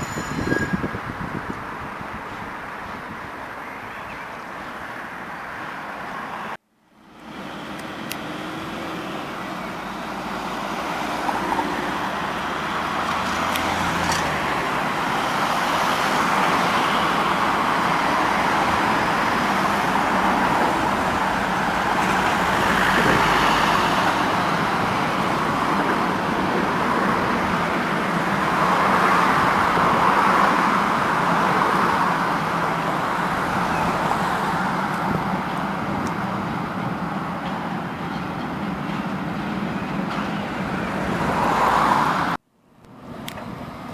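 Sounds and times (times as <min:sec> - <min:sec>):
road traffic: 0:00.0 - 0:43.9
tram wheels and motor: 0:07.1 - 0:41.4.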